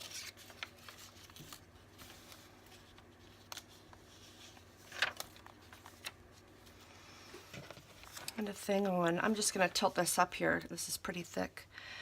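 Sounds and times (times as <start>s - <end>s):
paper rustling and ticking: 0.0s - 6.8s
low room hum: 0.0s - 12.0s.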